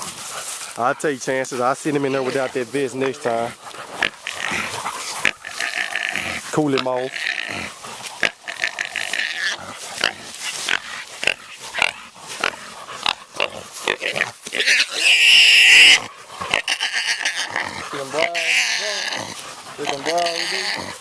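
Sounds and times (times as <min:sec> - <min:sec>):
hog squealing: 0:00.8 - 0:21.0.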